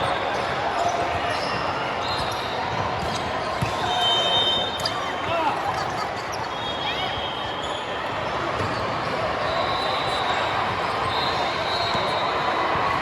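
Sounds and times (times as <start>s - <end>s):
sneakers squeaking on floor: 0.0s - 12.4s
crowd chatter: 0.0s - 13.0s
balls bouncing: 2.2s - 3.9s, 8.2s - 9.2s.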